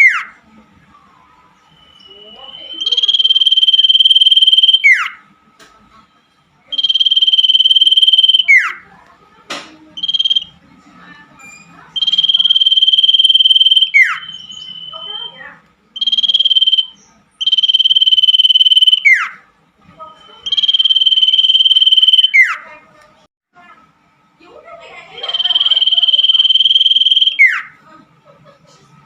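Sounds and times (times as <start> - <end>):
bird trilling calls: 0.0 - 0.4, 1.7 - 5.2, 6.7 - 8.9, 10.0 - 10.6, 11.9 - 19.4, 20.2 - 22.8, 25.2 - 27.8.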